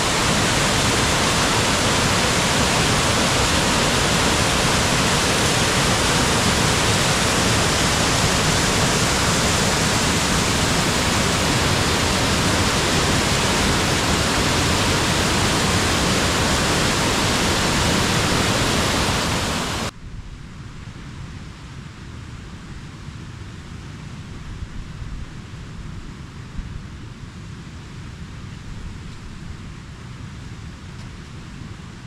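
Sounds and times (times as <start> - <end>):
fast-flowing water rushing: 0.0 - 19.9.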